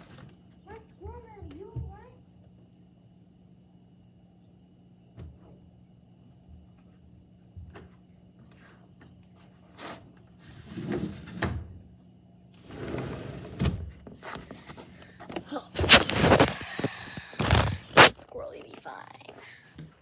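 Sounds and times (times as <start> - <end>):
knocks scuffs and clatters: 14.1 - 18.2.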